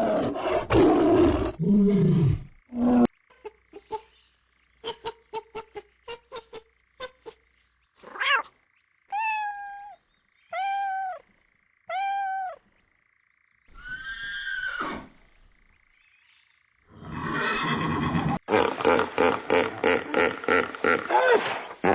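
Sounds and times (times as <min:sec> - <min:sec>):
long evenly pitched animal calls: 0:08.0 - 0:18.4.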